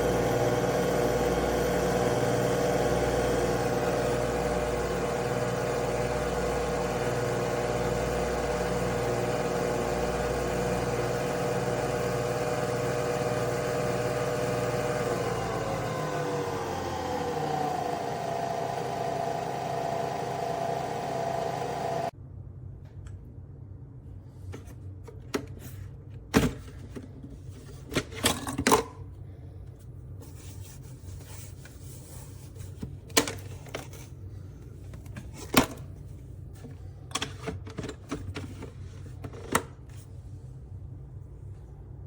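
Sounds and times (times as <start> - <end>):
coffee machine motor humming: 0.0 - 22.1.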